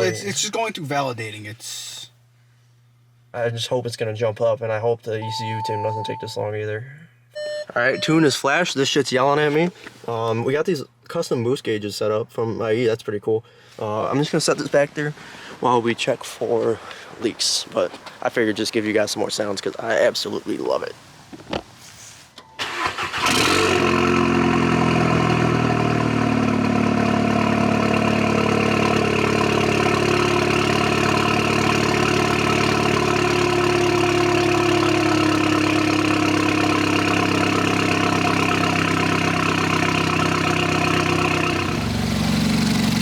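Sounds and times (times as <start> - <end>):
car engine starting and idling: 22.4 - 43.0.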